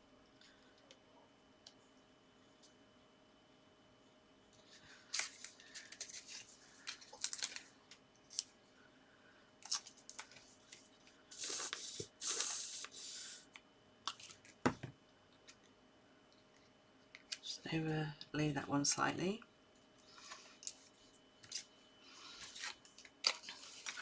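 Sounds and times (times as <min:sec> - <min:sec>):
paper clicks and rustles: 0:04.6 - 0:08.5, 0:22.4 - 0:24.0
knock on table: 0:14.6 - 0:15.0.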